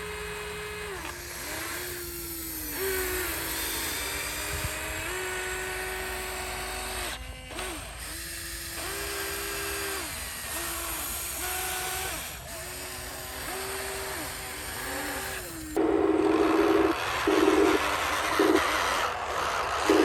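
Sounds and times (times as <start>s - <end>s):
small electric motors whining: 0.0s - 20.0s.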